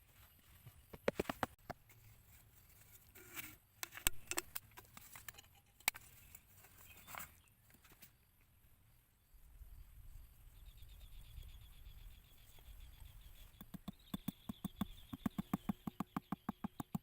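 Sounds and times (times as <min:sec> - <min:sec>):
sharp knocks and taps: 0:00.9 - 0:01.8, 0:13.5 - 0:17.0.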